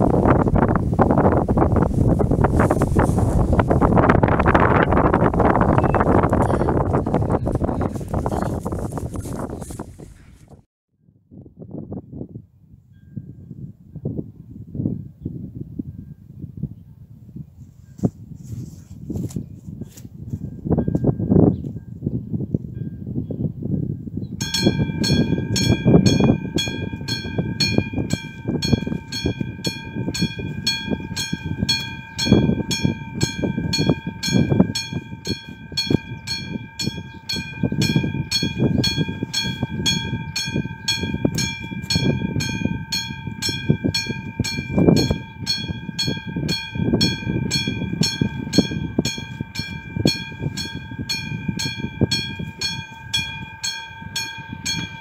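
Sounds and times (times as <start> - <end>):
level crossing warning bell: 24.4 - 55.0.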